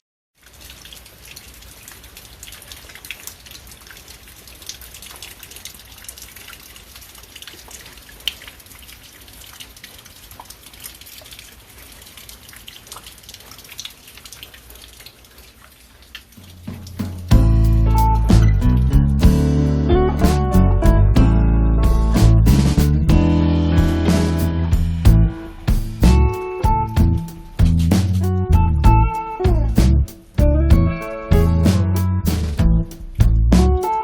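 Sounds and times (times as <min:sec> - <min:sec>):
rain dripping from eaves: 0:00.4 - 0:19.4, 0:23.8 - 0:34.0.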